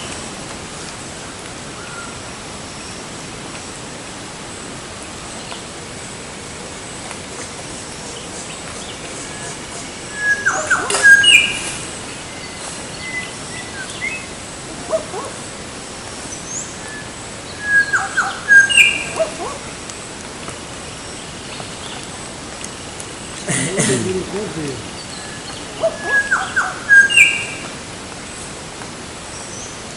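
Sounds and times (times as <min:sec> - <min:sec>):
background hiss: 0:00.0 - 0:29.9
bird calling: 0:10.1 - 0:11.7, 0:16.6 - 0:19.7, 0:23.3 - 0:27.7.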